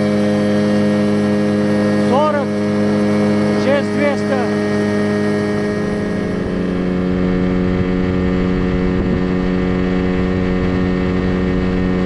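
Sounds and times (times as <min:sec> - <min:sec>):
outboard motor running: 0:00.0 - 0:12.0
water noise: 0:00.0 - 0:12.0
wind noise: 0:05.6 - 0:12.0.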